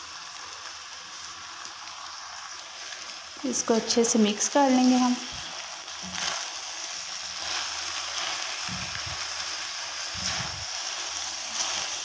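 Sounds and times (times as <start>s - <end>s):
food sizzling in oil: 0.0s - 12.0s
spatula stirring in pan: 4.8s - 12.0s
soft spatula thumps: 8.6s - 9.3s.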